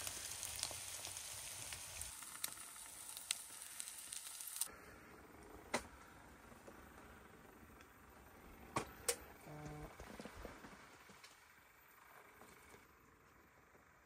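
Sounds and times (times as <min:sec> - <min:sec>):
meat and eggs sizzling in a pan: 0:00.0 - 0:04.7.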